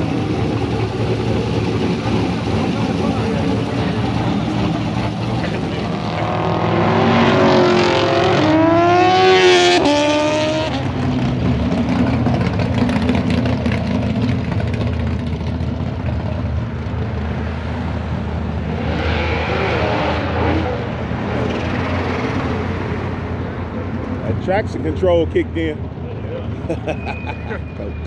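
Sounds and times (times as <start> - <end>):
low engine rumble: 0.0 - 6.3
car engine revving hard: 0.0 - 11.8.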